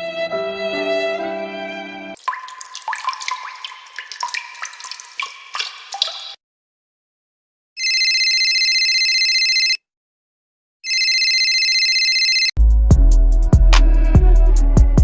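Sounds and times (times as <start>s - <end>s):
electronic telephone ringing: 7.8s - 9.8s, 10.8s - 12.5s.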